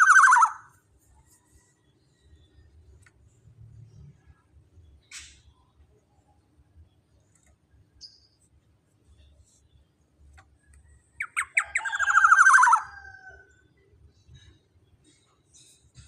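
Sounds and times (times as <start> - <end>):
bird's fast rattling call: 0.0 - 0.6, 11.2 - 13.0
bird calling with sharp notes: 0.0 - 0.8, 11.1 - 13.1.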